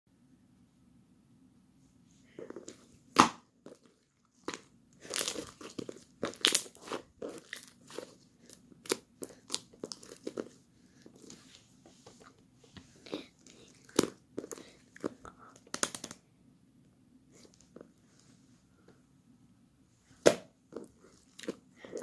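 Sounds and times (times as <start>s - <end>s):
crunching and crinkling: 3.6s - 16.2s, 20.7s - 22.0s.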